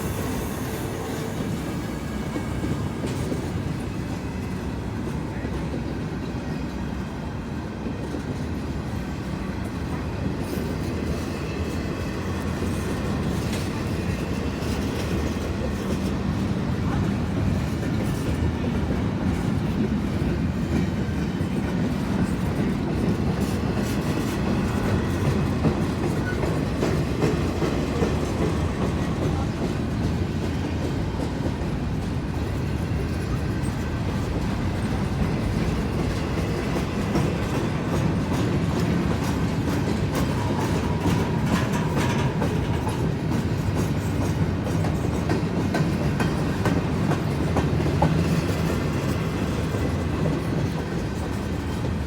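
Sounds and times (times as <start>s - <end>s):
freight train cars rumbling: 0.0s - 52.0s
wheels clicking over rail joints: 19.8s - 52.0s.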